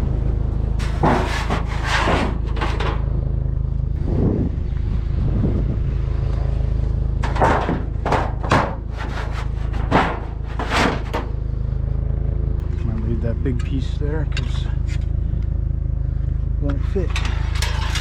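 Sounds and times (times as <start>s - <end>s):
low rumble: 0.0s - 18.0s
scrap scraping and knocking: 0.8s - 3.1s, 7.2s - 11.4s, 17.0s - 18.0s.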